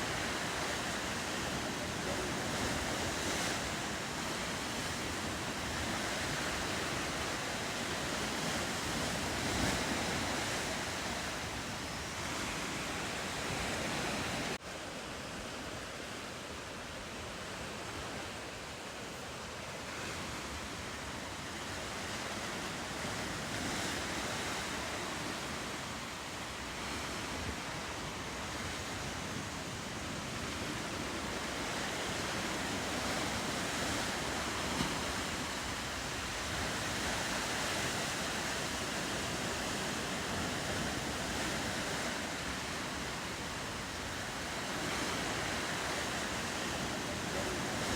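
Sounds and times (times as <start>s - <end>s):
ocean waves washing on rocks: 0.0s - 14.6s, 16.8s - 47.9s.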